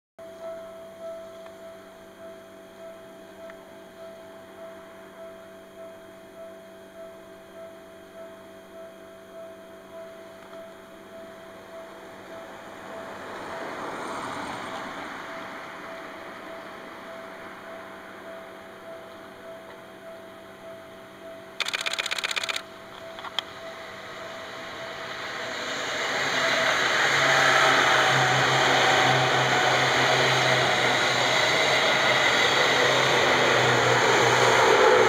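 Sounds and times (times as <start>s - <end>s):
level crossing warning bell: 0.2s - 14.3s
electric train passing: 9.4s - 35.0s.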